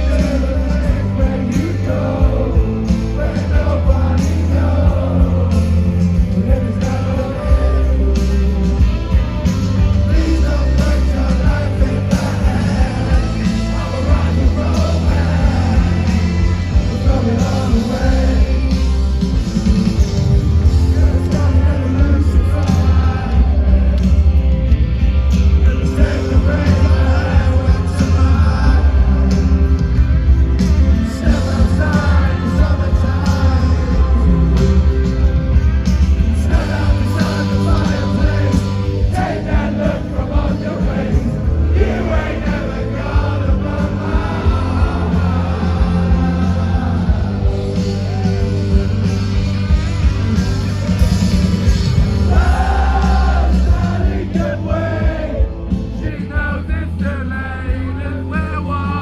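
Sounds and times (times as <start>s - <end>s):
sung vocals: 0.0s - 50.6s, 51.6s - 59.0s
live rock band playing: 0.0s - 59.0s.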